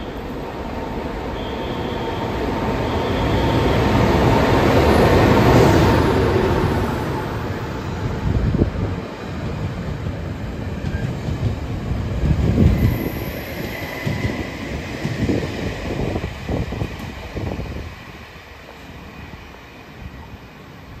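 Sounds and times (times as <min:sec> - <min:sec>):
train wheels rumbling and clacking: 0:03.0 - 0:18.0.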